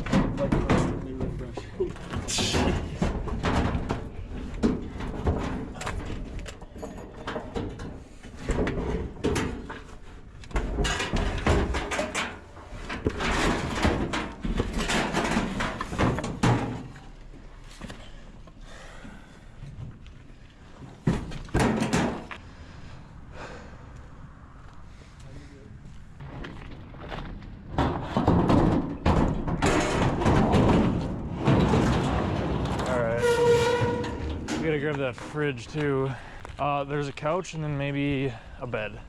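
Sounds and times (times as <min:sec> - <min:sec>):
hard objects knocking and clattering: 0:00.0 - 0:17.0, 0:26.2 - 0:33.0.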